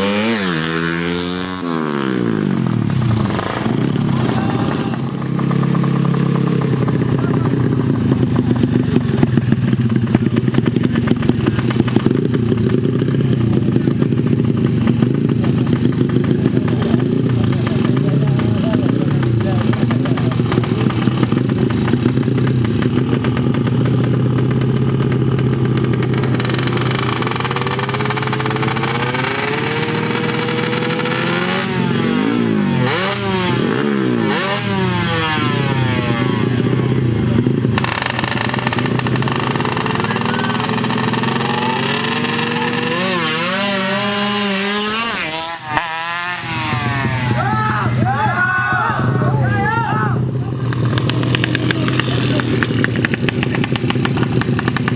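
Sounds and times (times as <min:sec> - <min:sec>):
motorcycle engines revving: 0:00.0 - 0:54.9
steady engine drone: 0:00.0 - 0:54.9.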